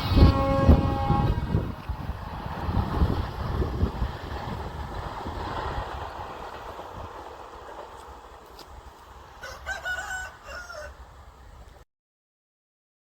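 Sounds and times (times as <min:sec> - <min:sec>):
train rumble: 0:00.0 - 0:11.8
rooster crowing: 0:09.4 - 0:11.1.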